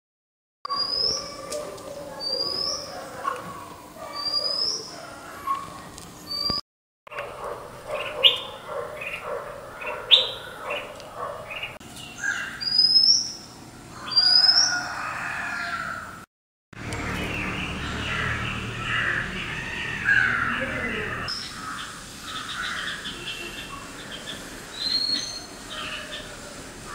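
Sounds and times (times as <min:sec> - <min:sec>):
bird chirps: 0:00.7 - 0:01.5, 0:04.1 - 0:04.9, 0:07.9 - 0:09.2, 0:11.5 - 0:14.9, 0:17.0 - 0:26.3
bird high rising call: 0:00.7 - 0:01.6, 0:11.5 - 0:16.0.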